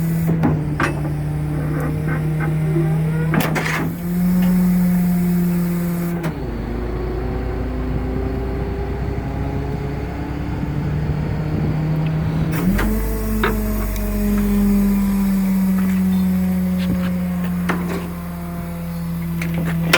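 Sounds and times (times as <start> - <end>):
garbage truck diesel engine: 0.0 - 19.9.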